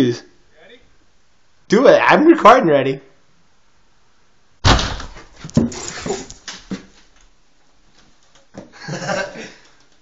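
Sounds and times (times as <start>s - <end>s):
scuffling and clattering: 5.0s - 7.2s.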